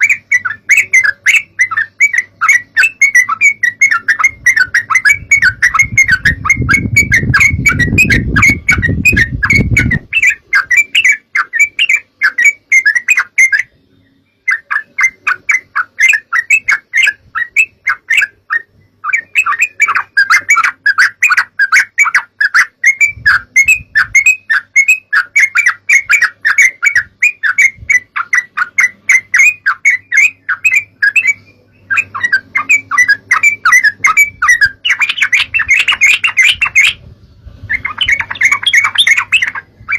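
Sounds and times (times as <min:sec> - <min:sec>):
bulbuls chattering and singing: 0:14.5 - 0:37.0, 0:37.7 - 0:39.9.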